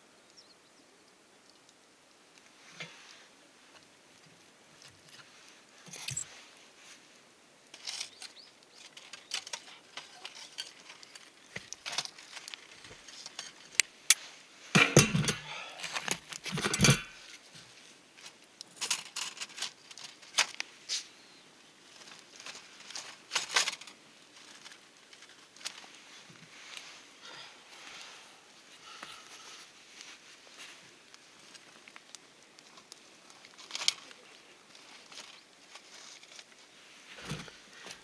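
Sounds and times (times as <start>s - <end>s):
objects clicking and knocking: 14.8s - 17.2s
objects clattering: 14.8s - 17.3s.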